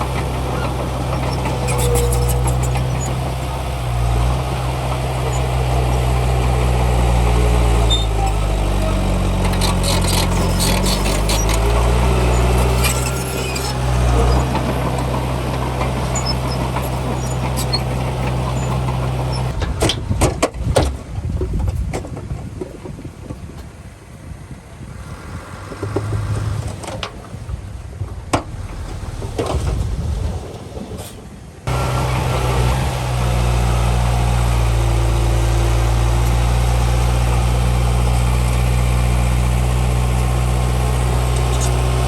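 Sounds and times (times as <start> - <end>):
heavy machinery diesel engine: 0.0 - 21.1, 23.9 - 42.0
knocks and clatter: 9.3 - 23.0.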